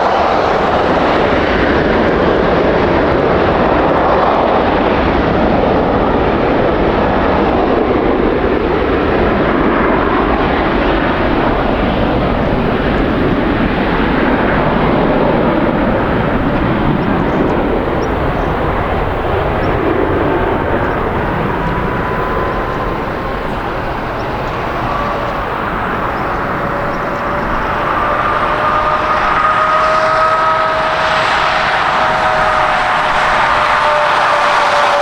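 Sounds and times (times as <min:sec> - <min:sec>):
jet engines roaring: 0:00.0 - 0:35.0
faint whining tones: 0:08.1 - 0:35.0.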